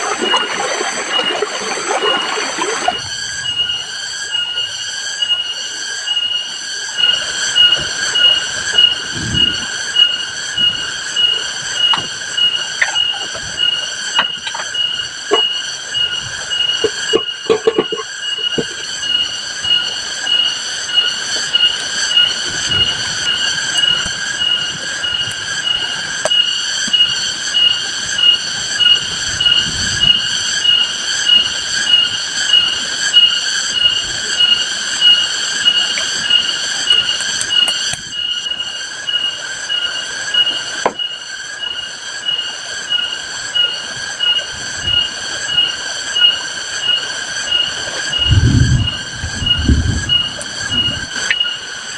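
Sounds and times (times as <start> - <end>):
high pulsing animal call: 7.0 - 19.9
heavy rain hissing: 7.7 - 13.7.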